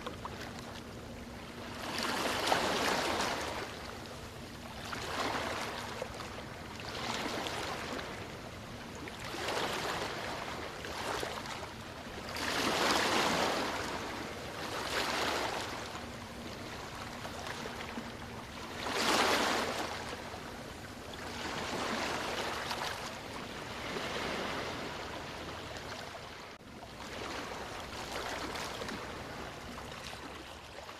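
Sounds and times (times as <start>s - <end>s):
sea waves washing: 9.2s - 30.6s.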